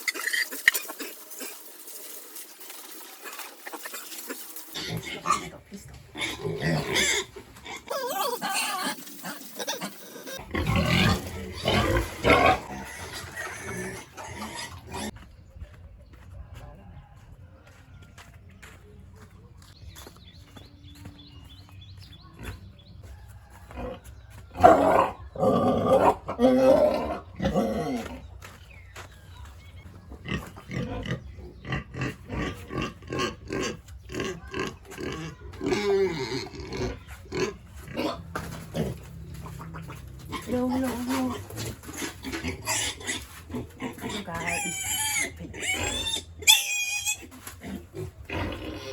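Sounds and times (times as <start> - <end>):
pigs grunting: 3.1 - 15.2, 23.7 - 28.4, 30.1 - 48.9
pig calling loudly: 3.7 - 14.9.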